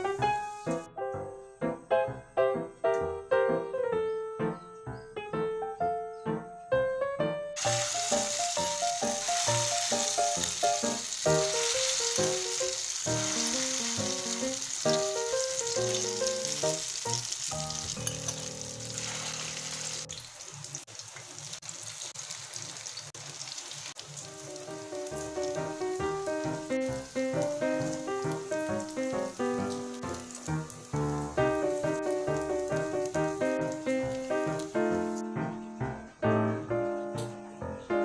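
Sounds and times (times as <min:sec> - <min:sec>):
background music: 0:00.0 - 0:19.7, 0:24.4 - 0:38.0
food sizzling in hot oil: 0:07.6 - 0:35.2.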